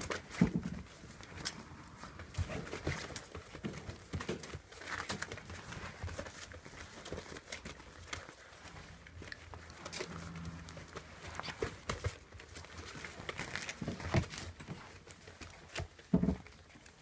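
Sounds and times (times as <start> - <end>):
paws and claws on floor: 0.0 - 17.0.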